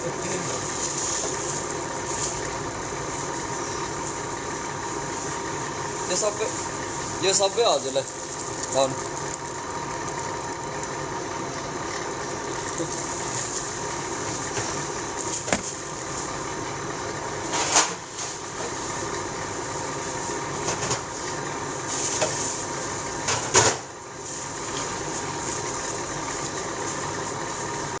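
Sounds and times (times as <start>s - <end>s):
steady hum: 0.0s - 23.3s.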